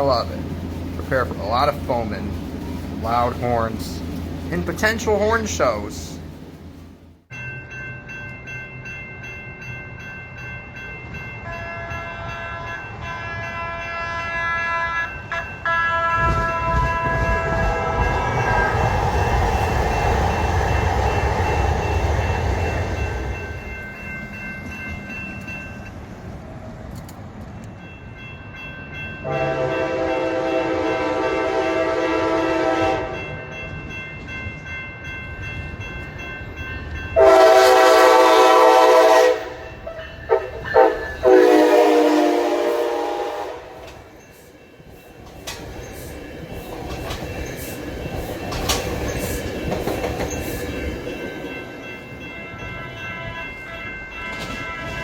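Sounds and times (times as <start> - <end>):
train rumbling: 0.0 - 55.0
multi-chime train horn: 11.4 - 18.8, 29.2 - 33.7, 37.1 - 44.4, 51.5 - 55.0.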